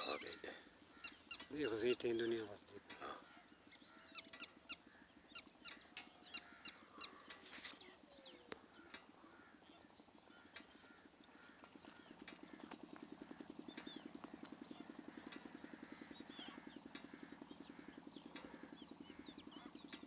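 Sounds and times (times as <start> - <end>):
bird chirps: 0.0 - 20.0
engine chugging: 10.0 - 20.0.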